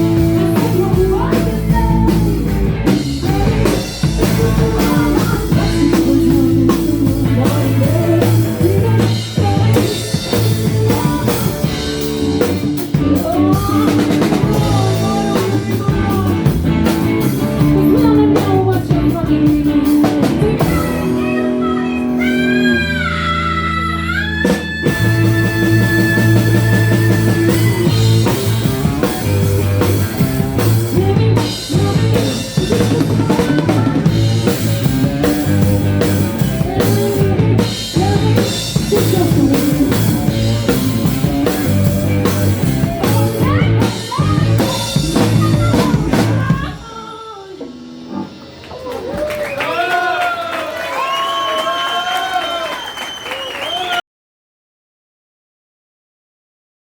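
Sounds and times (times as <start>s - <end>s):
drum kit: 0.0s - 22.7s, 24.2s - 53.9s
person singing: 0.0s - 47.9s
electric guitar: 0.0s - 49.6s.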